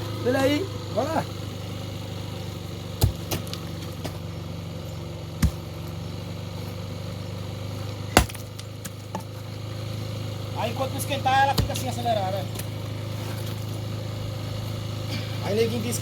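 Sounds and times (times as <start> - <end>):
small gasoline engine idling: 0.0 - 16.0
loud sharp knocks: 5.4 - 5.7.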